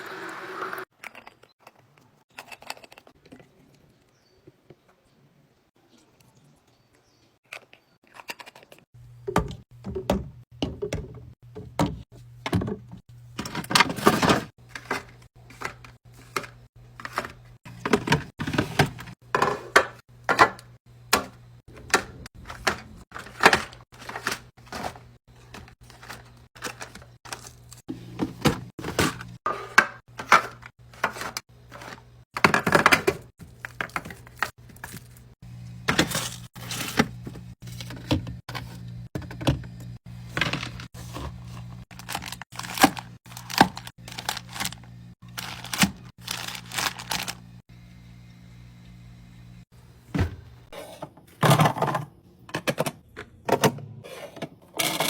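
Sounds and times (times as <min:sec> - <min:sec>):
food containers clicking and knocking: 0:07.6 - 0:47.4
packaging rustling: 0:23.1 - 0:27.8, 0:35.9 - 0:38.0, 0:40.2 - 0:47.5.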